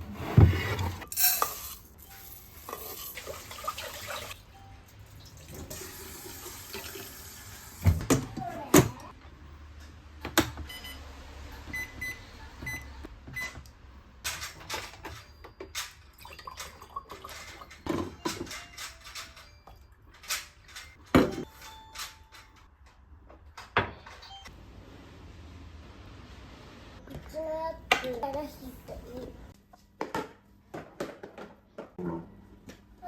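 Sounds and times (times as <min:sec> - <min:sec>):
appliance electronic beeps: 0:10.6 - 0:13.6
objects knocking and clattering: 0:14.2 - 0:24.5, 0:30.0 - 0:32.0.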